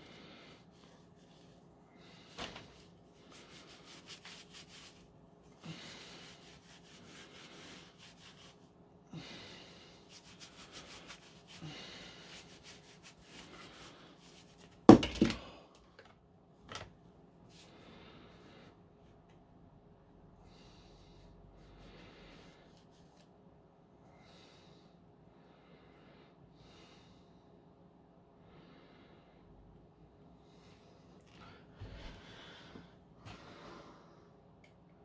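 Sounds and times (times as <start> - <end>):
cloth rubbing on plastic: 2.7 - 5.1.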